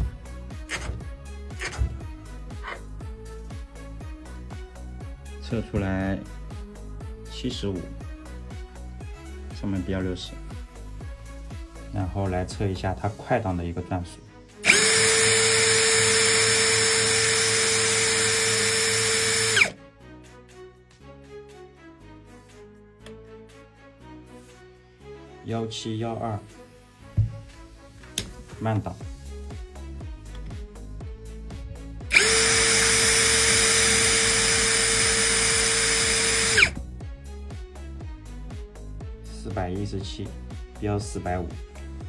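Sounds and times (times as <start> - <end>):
cordless drill whining: 0.0 - 2.8, 14.6 - 19.8, 32.1 - 36.8
quiet background music: 0.0 - 42.0.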